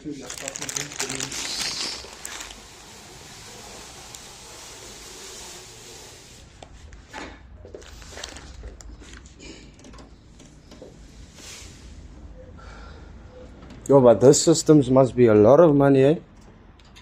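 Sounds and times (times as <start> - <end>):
rubbing and handling noise: 0.0 - 9.4.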